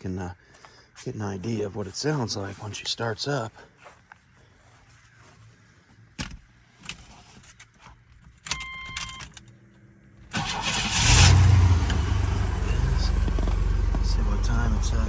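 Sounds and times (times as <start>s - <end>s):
car engine cranking and idling: 9.5s - 15.0s.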